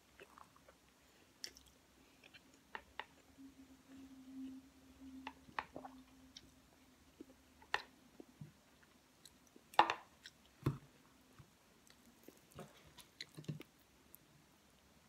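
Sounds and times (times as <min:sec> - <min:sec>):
person chewing food: 0:00.0 - 0:03.3, 0:05.7 - 0:10.8, 0:11.4 - 0:13.9.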